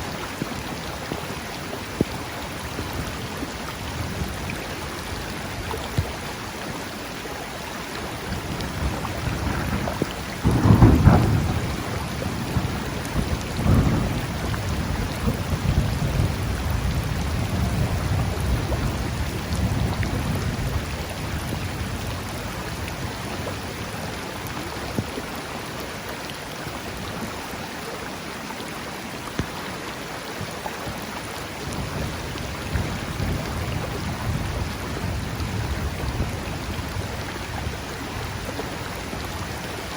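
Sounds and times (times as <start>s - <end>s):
rain hissing: 0.0s - 28.3s, 30.9s - 39.9s
rushing river water: 0.0s - 39.9s
thunder clap and rumble: 8.2s - 23.9s, 31.6s - 39.6s.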